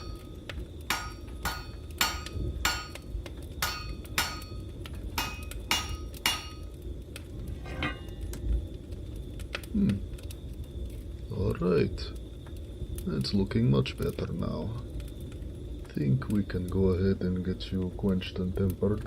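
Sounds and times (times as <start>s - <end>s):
hammer striking metal on anvil: 0.0s - 0.2s, 0.9s - 3.0s, 3.6s - 4.6s, 5.2s - 6.7s.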